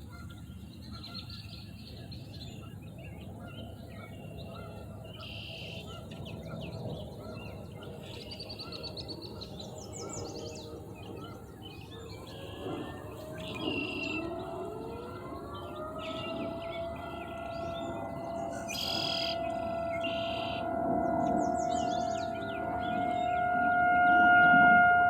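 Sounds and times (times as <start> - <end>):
songbirds chirping and trilling: 0.0 - 25.0
low outdoor rumble: 5.9 - 25.0.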